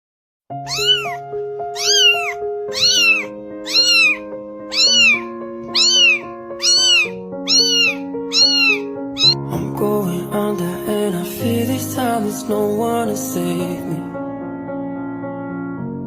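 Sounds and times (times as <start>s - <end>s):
cat meowing: 0.6s - 9.4s
background music with held chords: 1.1s - 16.0s.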